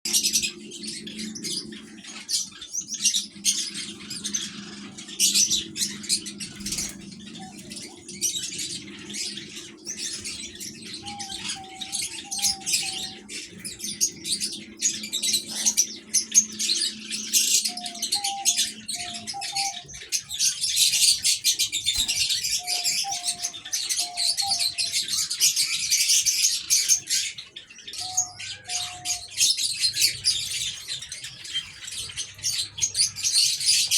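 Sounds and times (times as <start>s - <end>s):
doves cooing softly: 0.1s - 25.6s
birds chirping: 0.1s - 33.9s.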